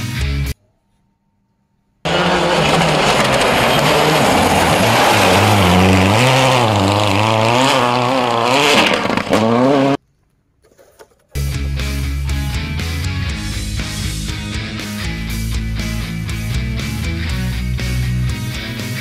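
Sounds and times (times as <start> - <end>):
rock music: 0.0 - 0.6, 11.4 - 19.0
racing engine revving: 2.1 - 10.0.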